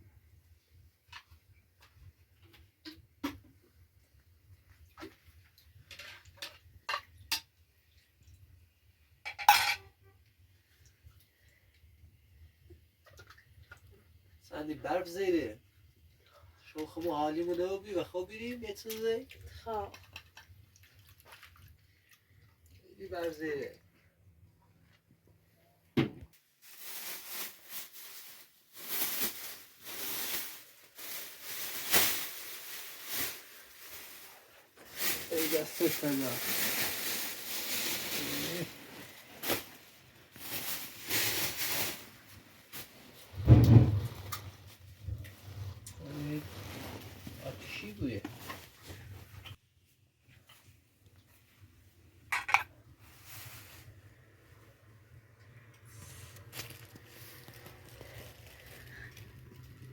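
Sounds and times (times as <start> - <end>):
dishes and utensils clinking: 9.3 - 9.9
crunching or rustling: 26.6 - 47.7, 56.0 - 59.9.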